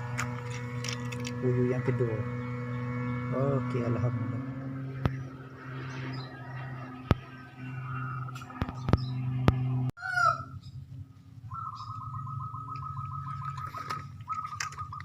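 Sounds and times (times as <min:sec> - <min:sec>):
low steady hum: 0:00.0 - 0:15.0
bird trilling call: 0:05.1 - 0:09.3, 0:11.4 - 0:15.0.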